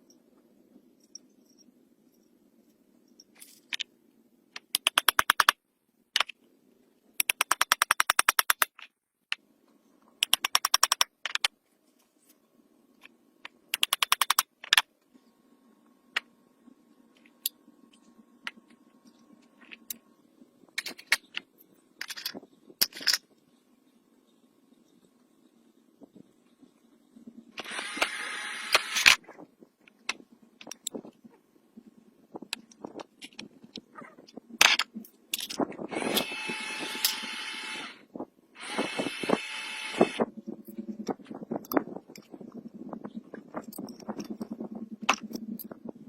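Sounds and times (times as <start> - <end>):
faint steady hum: 0.0 - 4.8, 8.9 - 46.0
rapid sharp mechanical clicks: 4.6 - 5.6, 7.2 - 8.9, 10.2 - 11.5, 13.7 - 14.9.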